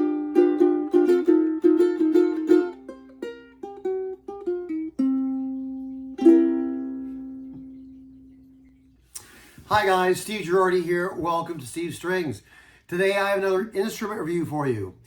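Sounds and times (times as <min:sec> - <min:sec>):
ukulele strumming and picking: 0:00.0 - 0:08.2.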